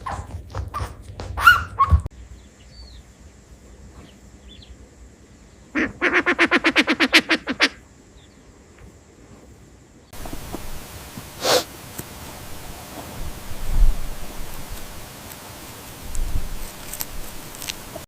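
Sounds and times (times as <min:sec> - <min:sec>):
duck calling rapidly: 0:05.8 - 0:07.8.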